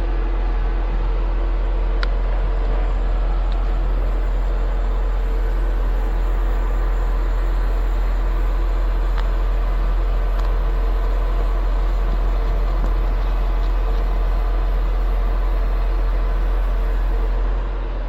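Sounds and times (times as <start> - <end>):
concrete pump humming: 0.0 - 18.0.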